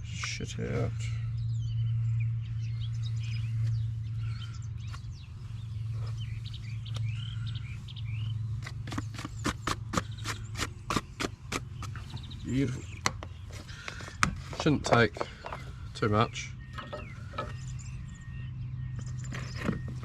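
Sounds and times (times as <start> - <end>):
steady low drone: 0.0 - 9.2
birds chirping: 0.0 - 20.0.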